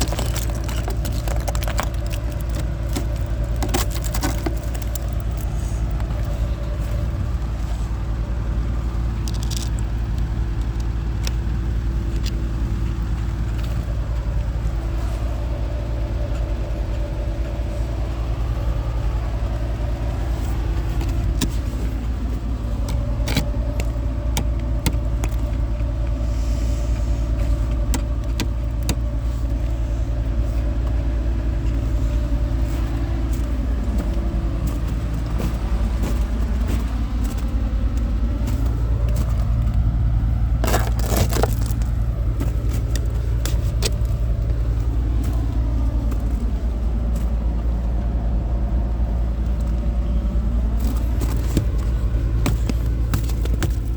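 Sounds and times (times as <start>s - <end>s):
light clicks and rattles: 0.0s - 6.4s, 9.0s - 14.5s
car engine rumbling: 0.0s - 53.9s.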